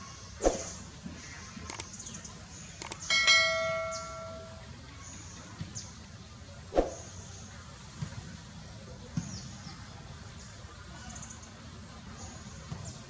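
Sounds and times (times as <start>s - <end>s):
struck metallic bell ring: 3.0s - 4.7s.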